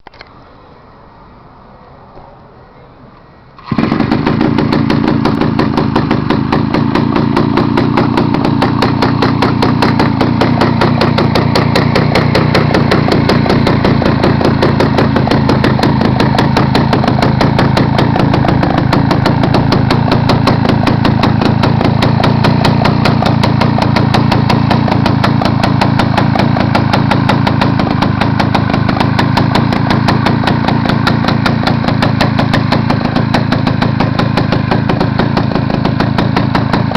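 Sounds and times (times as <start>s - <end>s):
small engine running: 3.6s - 36.9s.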